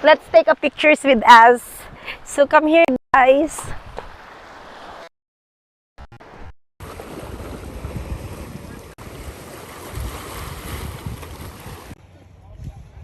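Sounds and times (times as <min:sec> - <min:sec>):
surf washing on beach: 0:06.3 - 0:12.0
wind buffeting microphone: 0:06.8 - 0:13.0.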